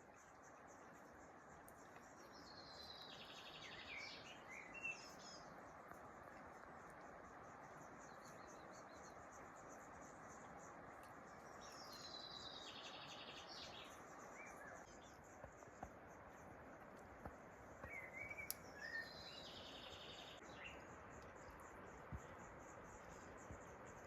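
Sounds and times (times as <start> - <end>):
faint outdoor hiss: 0.0 - 24.0
light clicks: 16.8 - 18.9
songbird trilling: 17.8 - 20.9.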